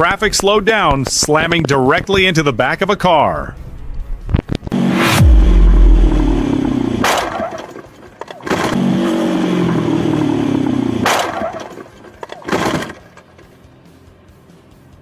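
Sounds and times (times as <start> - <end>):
motorcycle engine running: 4.7 - 14.2
motorcycle crashing into car: 6.0 - 13.4.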